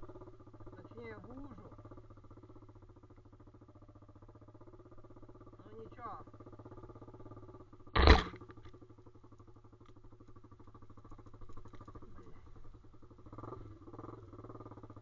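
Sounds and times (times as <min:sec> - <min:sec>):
small engine idling: 0:00.0 - 0:15.0
loud short thump: 0:08.0 - 0:08.4.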